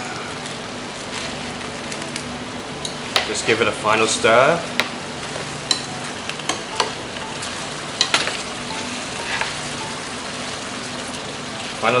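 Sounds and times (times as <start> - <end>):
food sizzling in a pan: 2.8 - 12.0.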